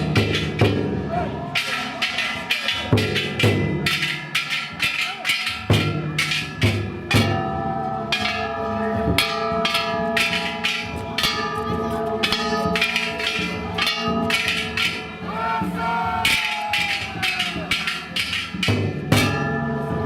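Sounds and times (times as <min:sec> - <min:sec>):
continuous metallic ringing: 0:00.0 - 0:20.0
taiko drum beating: 0:00.0 - 0:20.0
bronze gong strikes: 0:05.2 - 0:15.2.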